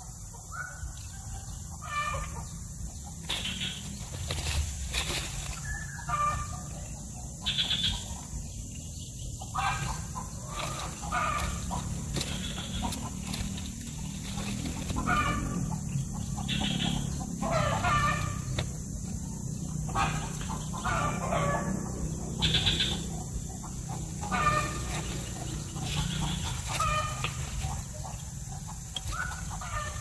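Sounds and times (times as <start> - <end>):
steady low hum: 0.0 - 30.0
bird making harsh calls: 9.6 - 13.3, 14.3 - 15.8, 16.4 - 18.9, 19.9 - 28.1.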